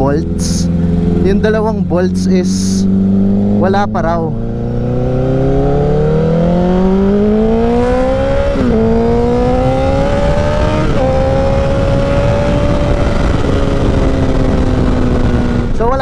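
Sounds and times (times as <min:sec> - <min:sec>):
motorcycle engine accelerating: 0:00.0 - 0:16.0
wind noise: 0:00.0 - 0:16.0.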